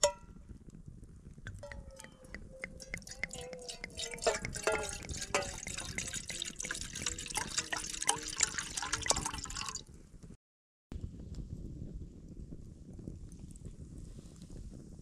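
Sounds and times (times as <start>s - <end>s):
campfire crackling and popping: 0.0s - 9.8s
wavering whistles: 1.6s - 5.4s.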